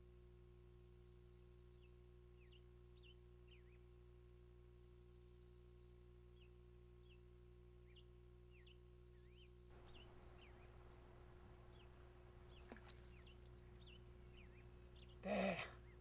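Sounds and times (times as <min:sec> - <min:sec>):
bird chirping: 0:07.8 - 0:15.2.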